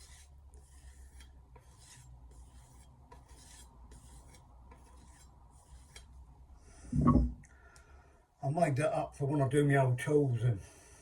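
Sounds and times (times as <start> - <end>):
low steady hum: 6.4 - 8.0.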